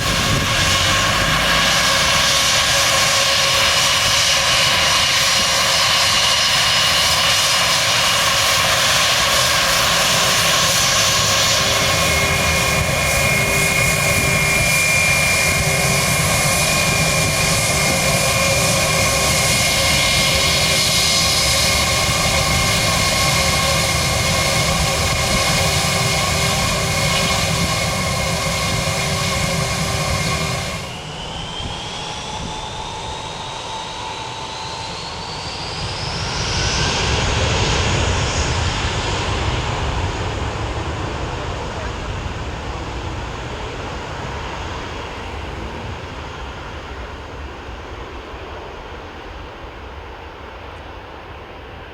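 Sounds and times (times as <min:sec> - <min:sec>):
airliner engines with high whine: 0:00.0 - 0:51.9
whine rising in pitch: 0:11.1 - 0:37.3.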